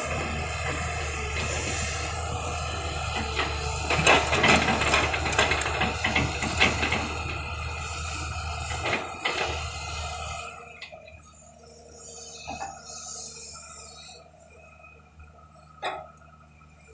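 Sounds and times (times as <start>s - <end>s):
low engine hum: 0.0s - 16.9s.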